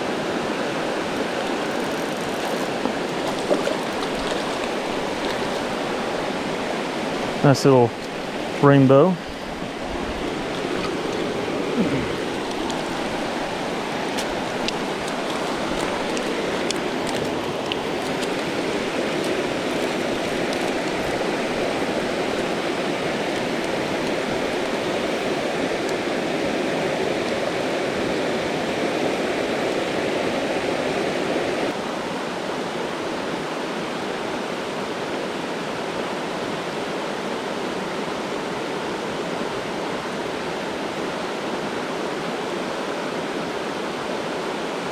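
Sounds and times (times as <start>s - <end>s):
creek rushing over rocks: 0.0s - 32.0s.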